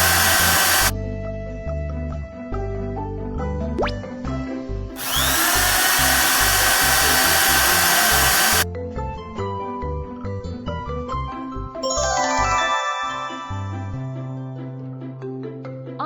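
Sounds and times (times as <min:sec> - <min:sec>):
cartoon piling drill boring: 0:00.0 - 0:00.9, 0:05.0 - 0:08.6
cheerful background music: 0:08.8 - 0:16.0.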